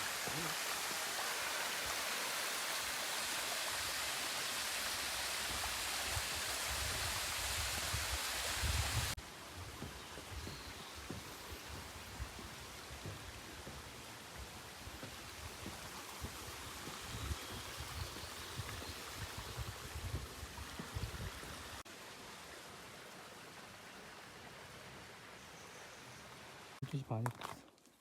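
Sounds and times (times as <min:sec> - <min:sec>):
stream rushing: 0:00.0 - 0:09.2.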